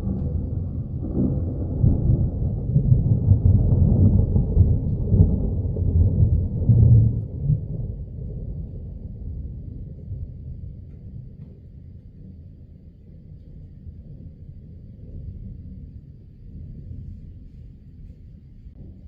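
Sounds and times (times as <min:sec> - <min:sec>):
rolling thunder: 0:00.0 - 0:13.0.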